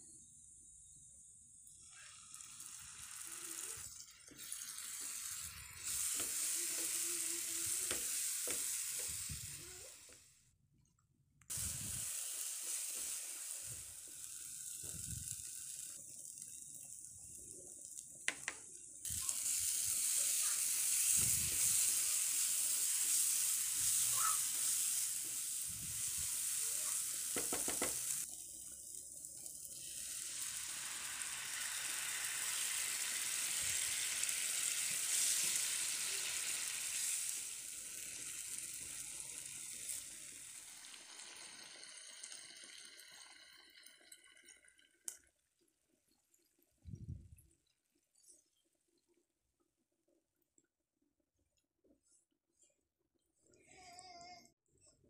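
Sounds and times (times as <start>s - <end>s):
paste sizzling in oil: 1.6s - 10.3s, 11.5s - 44.4s
spatula knocking against pan: 27.4s - 28.0s.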